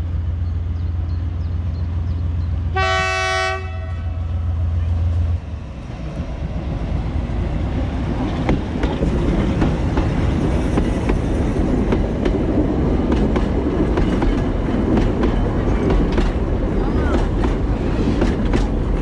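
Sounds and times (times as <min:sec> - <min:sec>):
diesel locomotive passing: 0:00.0 - 0:19.0
wheels clicking on track: 0:08.1 - 0:19.0.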